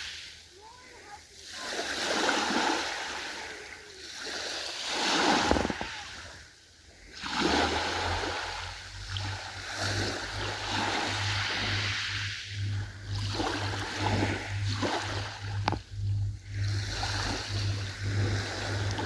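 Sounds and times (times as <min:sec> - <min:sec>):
sea waves washing in: 0:00.0 - 0:19.0
low pulsing hum: 0:05.2 - 0:19.0.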